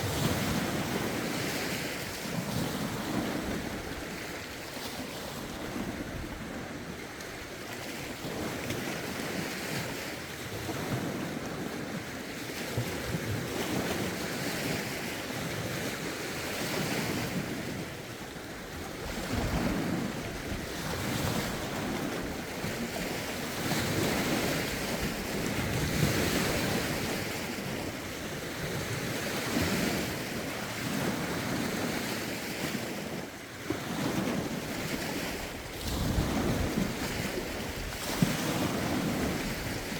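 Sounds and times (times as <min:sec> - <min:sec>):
waves washing against shore: 0:00.0 - 0:39.9
wind buffeting microphone: 0:12.8 - 0:39.9.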